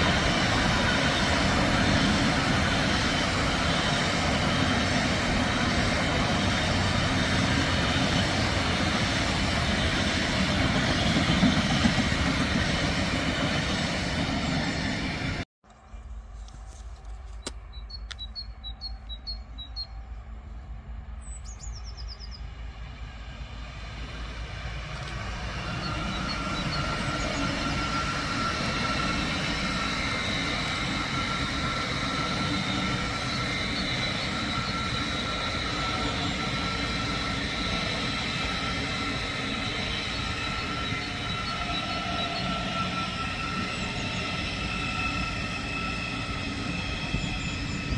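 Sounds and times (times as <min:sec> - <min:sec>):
electric train passing: 0:00.0 - 0:47.9
birds chirping: 0:17.4 - 0:20.2, 0:21.1 - 0:22.6
high whining tones: 0:24.9 - 0:47.9.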